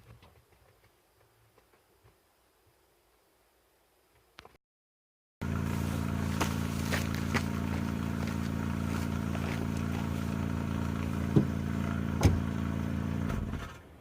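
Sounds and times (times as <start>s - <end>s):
car engine running: 5.4s - 13.8s.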